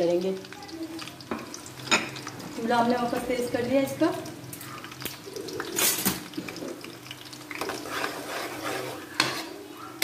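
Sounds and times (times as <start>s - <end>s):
onions sizzling in hot oil: 0.0s - 10.0s
metal spoon scraping a pan: 7.6s - 9.7s.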